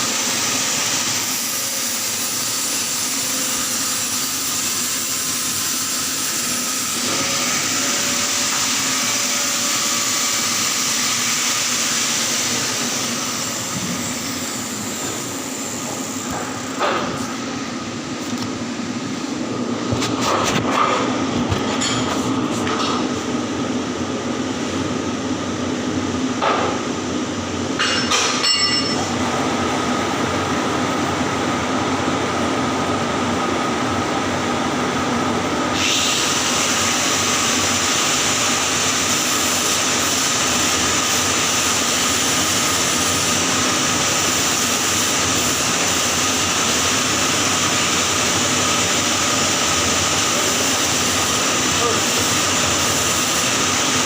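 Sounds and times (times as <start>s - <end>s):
welding arc hiss: 0.0s - 17.6s, 35.7s - 54.0s
steady machine hum: 0.0s - 54.0s.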